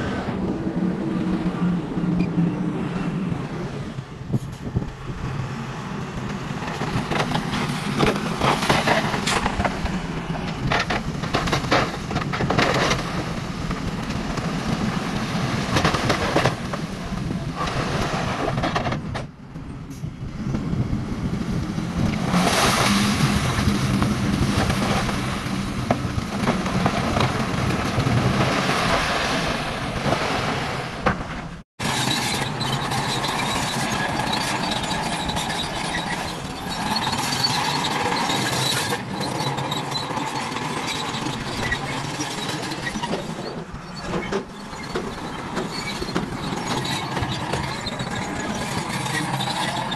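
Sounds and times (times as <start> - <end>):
clicks and clatters: 6.3 - 19.3, 24.0 - 28.6.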